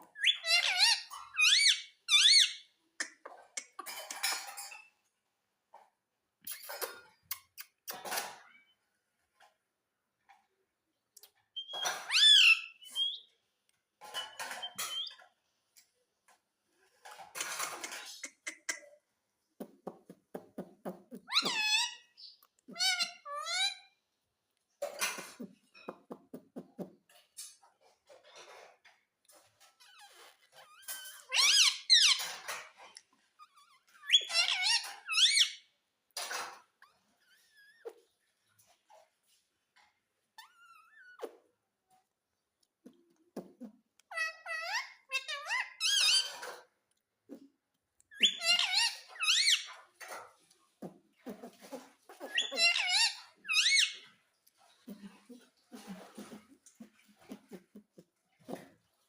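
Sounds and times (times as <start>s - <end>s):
parakeet calling: 0.1s - 2.6s, 52.2s - 54.0s
parrot squawking: 0.1s - 2.7s, 21.2s - 23.9s, 33.9s - 35.6s, 44.1s - 46.4s, 48.2s - 49.8s, 51.5s - 54.1s
parakeet harsh chatter: 0.2s - 2.5s, 51.4s - 54.0s.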